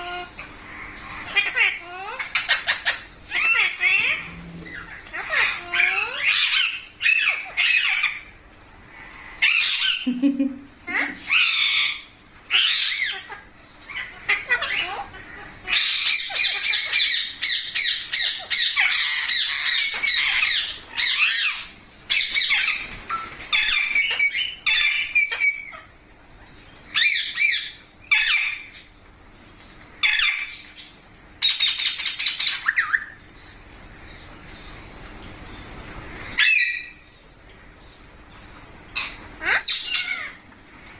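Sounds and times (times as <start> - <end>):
parakeets squawking: 0.0 - 8.3, 8.9 - 10.0, 10.8 - 25.9, 26.8 - 28.9, 30.0 - 30.8, 31.4 - 33.2, 36.2 - 37.1, 38.9 - 40.6.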